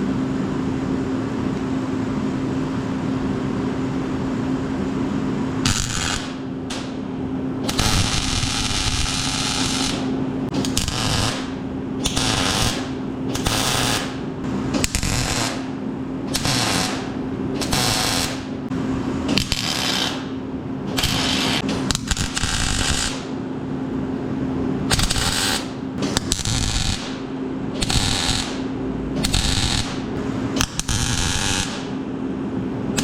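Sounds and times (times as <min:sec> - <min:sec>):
steady low hum: 0:00.0 - 0:33.0
power tool running in bursts: 0:10.6 - 0:14.1.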